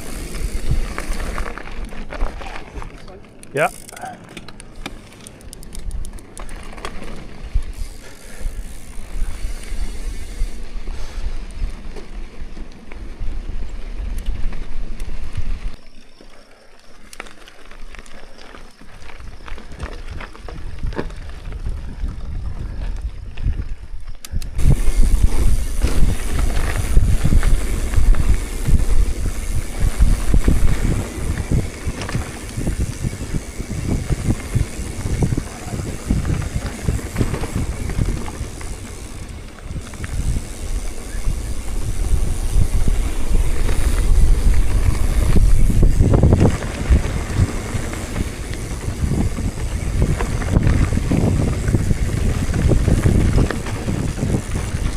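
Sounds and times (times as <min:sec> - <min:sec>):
wind buffeting microphone: 0:00.0 - 0:02.9, 0:19.1 - 0:54.9.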